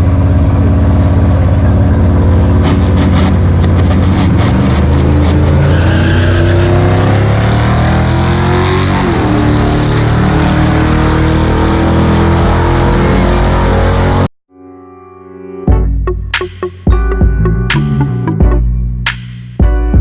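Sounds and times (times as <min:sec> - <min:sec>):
car engine revving: 0:00.0 - 0:14.3.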